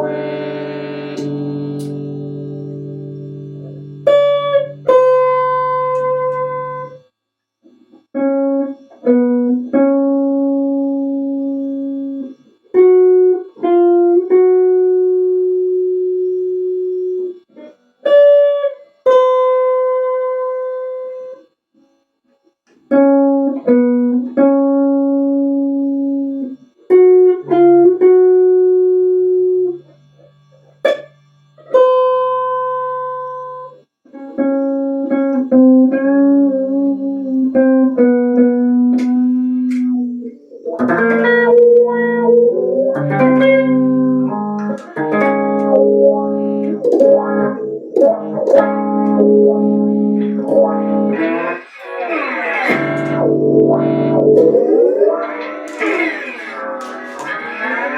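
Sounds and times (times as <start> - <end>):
slow guitar playing: 0.0 - 7.1, 7.7 - 21.4, 22.8 - 57.9.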